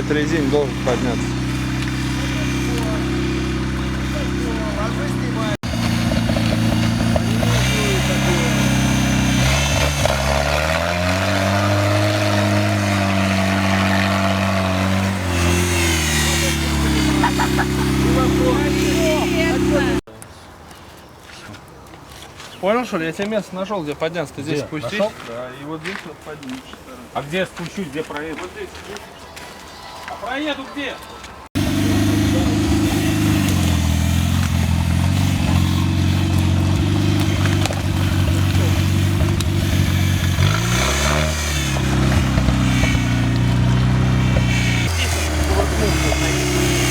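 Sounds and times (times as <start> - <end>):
jeep engine running under load: 0.0 - 20.1, 31.6 - 46.9.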